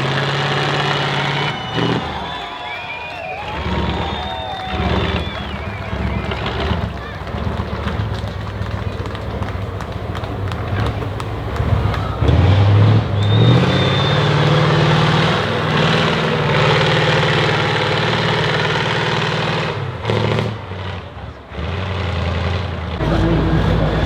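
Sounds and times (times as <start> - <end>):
truck engine revving: 0.0 - 24.0.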